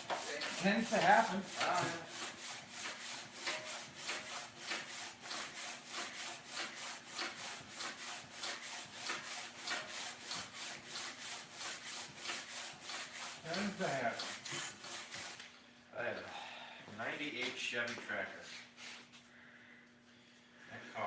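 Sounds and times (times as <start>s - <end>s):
hand rubbing or scrubbing: 0.0s - 15.4s.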